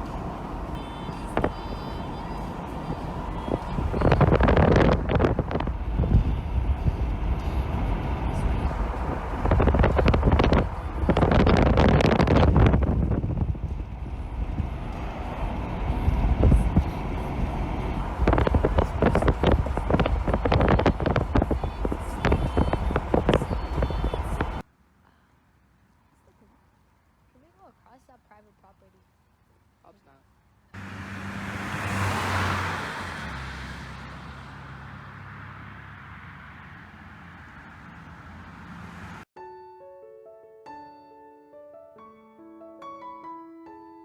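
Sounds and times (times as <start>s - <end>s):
wind buffeting microphone: 0.0s - 24.6s.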